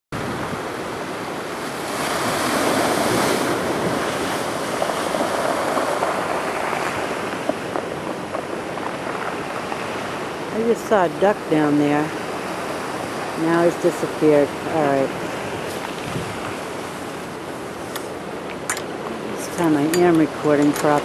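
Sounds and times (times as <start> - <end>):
surf washing onto shore: 0.2 - 21.0.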